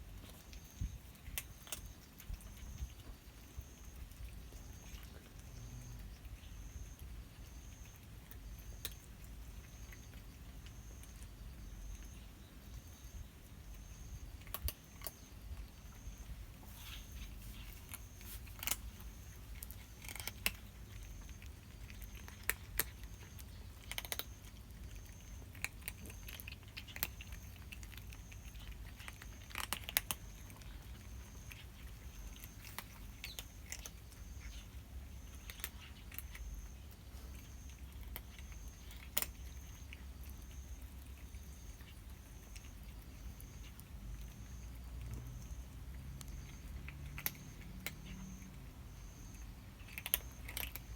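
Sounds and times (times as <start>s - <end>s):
cats crunching dry food: 0.0s - 50.9s.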